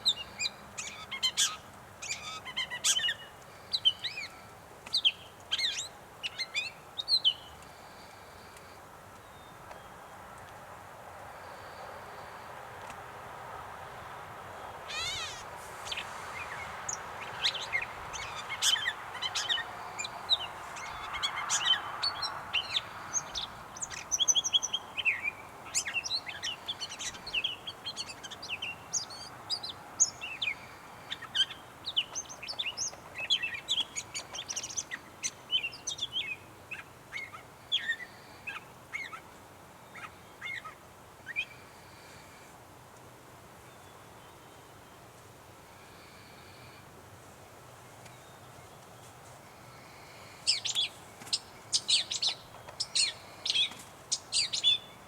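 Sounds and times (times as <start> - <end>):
catbird singing: 14.9 - 39.2, 50.5 - 55.0.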